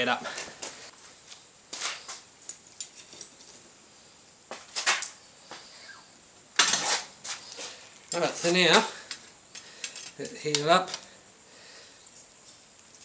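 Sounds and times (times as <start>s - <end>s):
metal tools clanking and scraping: 8.1s - 11.1s.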